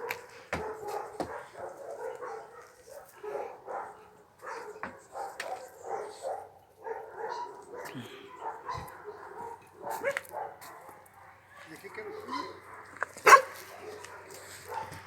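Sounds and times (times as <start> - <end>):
dogs barking and yipping: 0.0 - 15.0.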